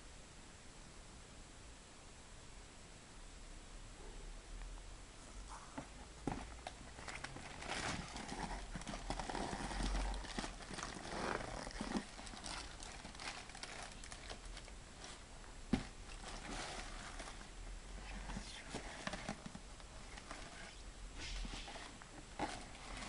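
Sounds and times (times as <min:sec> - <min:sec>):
packaging rustling: 0:05.8 - 0:20.7.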